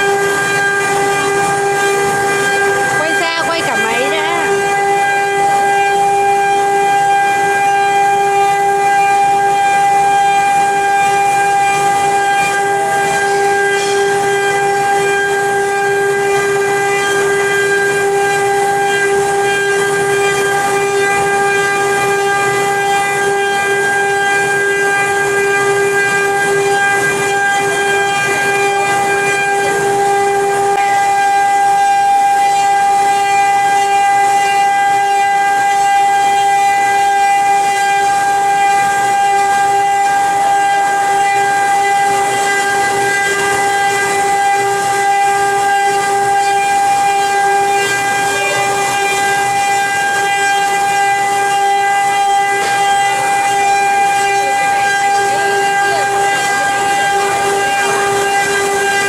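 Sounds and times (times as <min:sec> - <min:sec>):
carving machine whine: 0:00.0 - 0:59.0.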